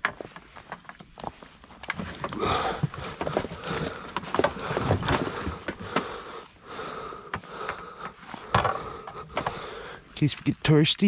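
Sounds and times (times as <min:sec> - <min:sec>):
gear rustling and knocking: 0:00.0 - 0:06.3, 0:07.3 - 0:09.7.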